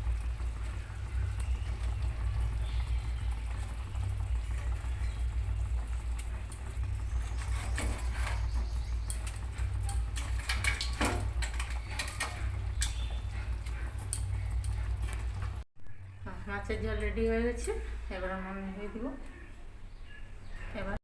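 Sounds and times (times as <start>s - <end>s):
curry boiling in a pan: 0.0s - 16.0s
steady low hum: 0.0s - 21.0s.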